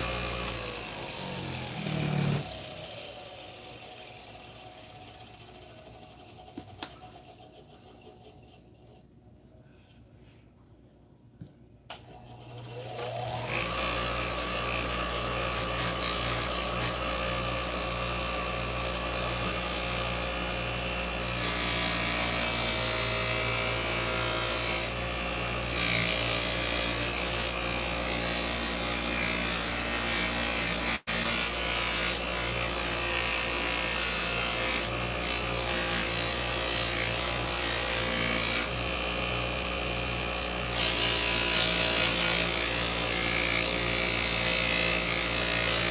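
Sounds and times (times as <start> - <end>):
polishing wheel motor humming: 0.0 - 2.9.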